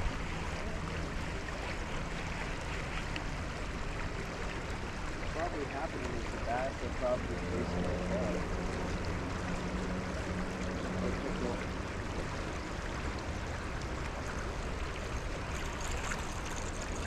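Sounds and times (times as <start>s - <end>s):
low steady hum: 0.0s - 17.0s
water wash: 0.0s - 17.0s.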